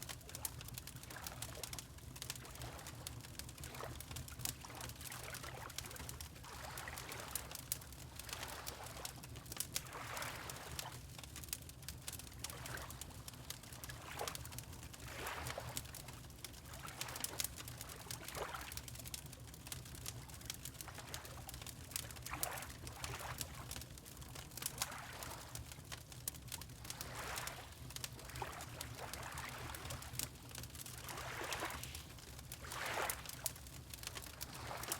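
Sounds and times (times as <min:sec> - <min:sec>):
low rumble of fire: 0:00.0 - 0:34.9
water lapping: 0:08.2 - 0:09.1, 0:10.0 - 0:10.9, 0:15.0 - 0:15.8, 0:22.2 - 0:23.7, 0:24.8 - 0:25.6, 0:27.0 - 0:34.9
fireplace crackling: 0:25.5 - 0:34.9.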